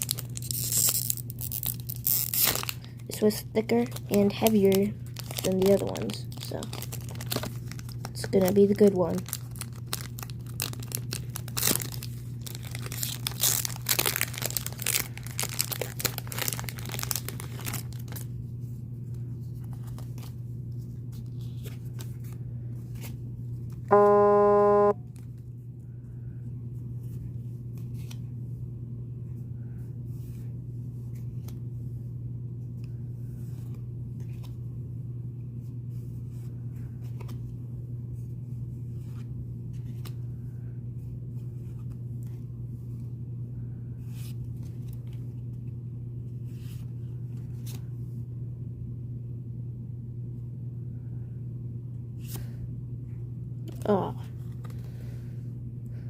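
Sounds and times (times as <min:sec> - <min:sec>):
foil wrapper tearing and crinkling: 0:00.0 - 0:03.0, 0:03.8 - 0:18.3
cards being handled: 0:00.0 - 0:18.4, 0:19.0 - 0:25.4, 0:27.1 - 0:28.4, 0:33.3 - 0:34.6, 0:36.3 - 0:37.6, 0:38.9 - 0:40.2, 0:41.4 - 0:42.5, 0:53.7 - 0:55.0
low steady hum: 0:00.0 - 0:56.0
loud buzzing tone: 0:23.9 - 0:25.0.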